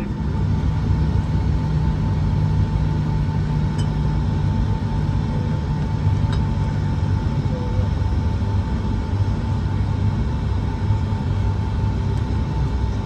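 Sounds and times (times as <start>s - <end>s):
air-conditioning hum: 0.0s - 13.0s
faint steady whine: 0.0s - 13.0s.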